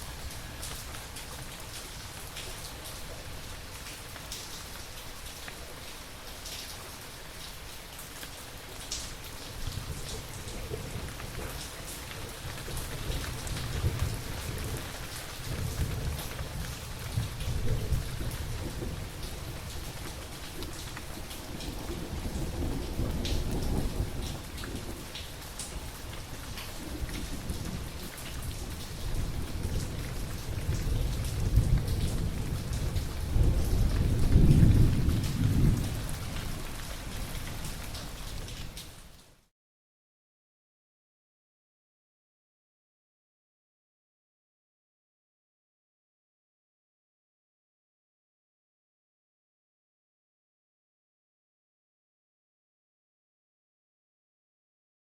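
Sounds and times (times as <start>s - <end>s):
steady rain: 0.0s - 39.5s
rolling thunder rumble: 12.5s - 25.2s, 26.8s - 36.7s.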